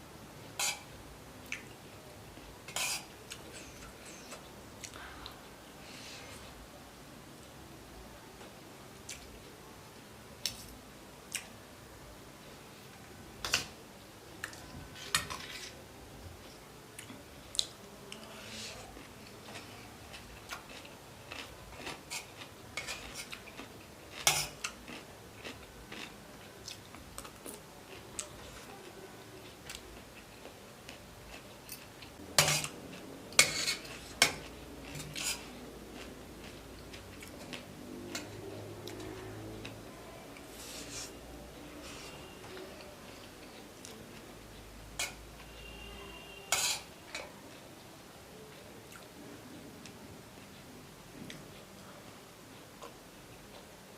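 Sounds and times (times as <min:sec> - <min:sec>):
cutlery clinking on a plate: 0:46.5 - 0:47.3.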